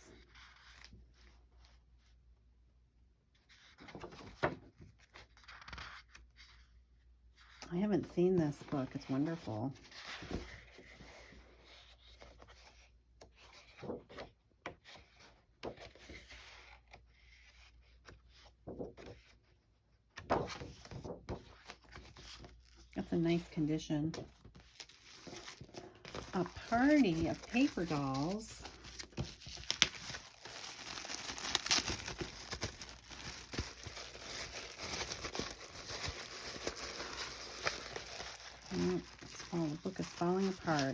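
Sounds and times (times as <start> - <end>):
paper pages rustling: 3.5 - 6.6, 20.2 - 40.9.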